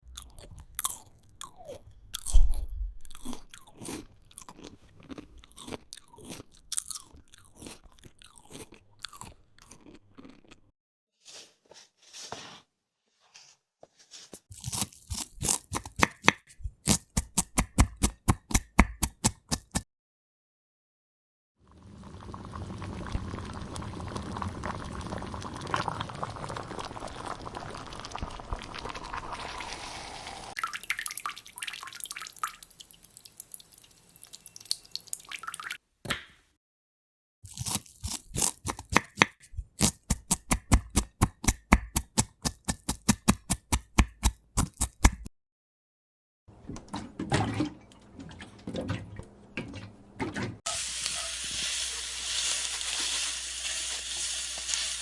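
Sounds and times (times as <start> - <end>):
knife chopping on cutting board: 14.6 - 19.8, 37.5 - 45.3.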